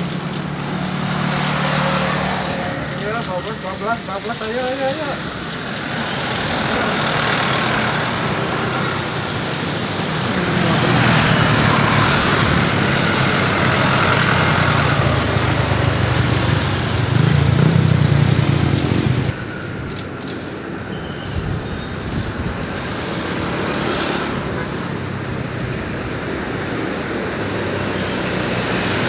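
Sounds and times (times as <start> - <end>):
jet engines roaring: 0.0 - 21.0.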